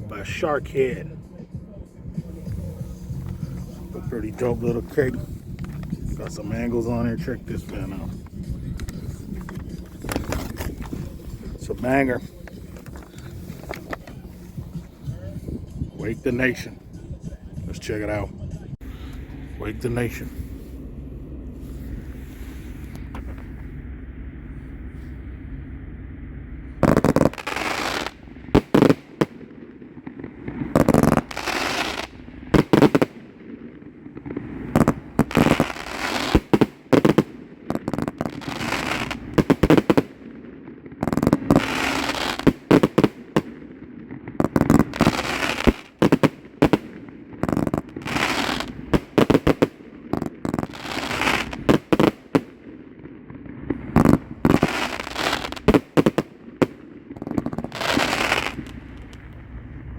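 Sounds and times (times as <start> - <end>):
fireworks crackling: 0.0 - 20.8, 21.4 - 23.8, 26.7 - 59.8
firework launch thumps and bangs: 30.2 - 33.2.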